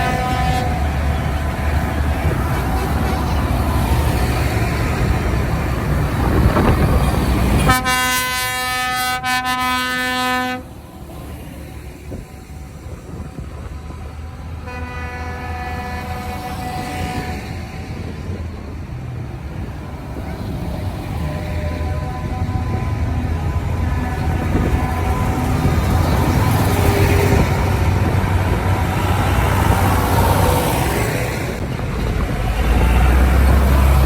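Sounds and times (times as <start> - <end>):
vehicle horn blast: 0.0 - 0.9, 7.6 - 10.7, 14.6 - 17.6
tractor engines running: 0.0 - 8.8, 10.7 - 34.0.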